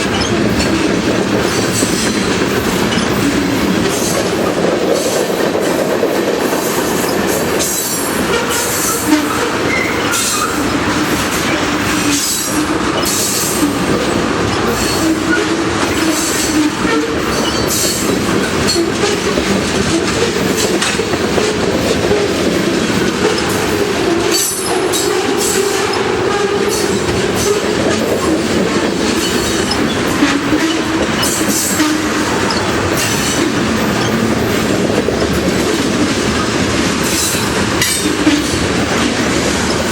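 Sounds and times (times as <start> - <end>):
freight train rumble: 0.0 - 39.9
wheels clicking over rail joints: 0.0 - 39.9
wheel squeal: 0.1 - 0.8, 8.6 - 10.7, 14.6 - 19.2, 29.2 - 33.4.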